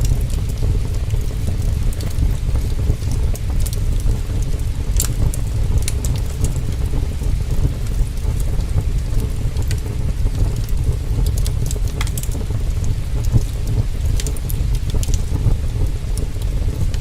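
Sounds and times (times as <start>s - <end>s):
heavy rain: 0.0s - 17.0s
steady deep rumble: 0.0s - 17.0s
wood fire crackling and popping: 0.0s - 17.0s.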